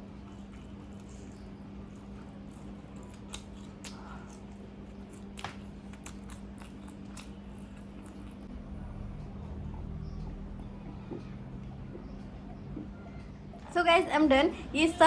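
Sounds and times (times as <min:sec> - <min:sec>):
chewing and biting: 0:00.0 - 0:08.5
small crunches: 0:00.0 - 0:08.5
steady low hum: 0:00.0 - 0:15.0
wet mouth clicks: 0:00.2 - 0:08.5.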